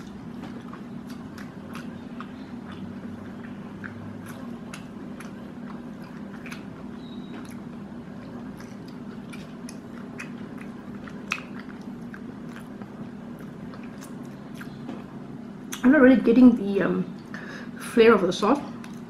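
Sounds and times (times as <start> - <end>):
person chewing crispy food: 0.0 - 15.1, 18.8 - 19.0
steady low hum: 0.0 - 19.0
wet mouth clicks and smacks: 8.6 - 12.7.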